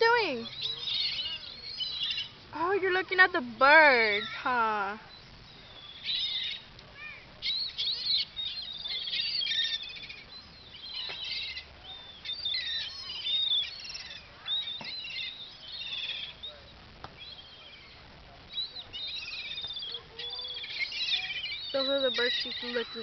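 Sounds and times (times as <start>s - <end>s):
flock of birds calling: 0.0s - 23.0s.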